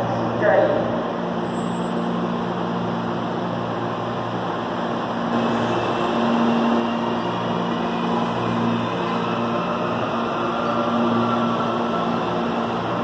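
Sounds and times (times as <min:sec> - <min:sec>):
electric train rumble and hum: 0:00.0 - 0:13.0.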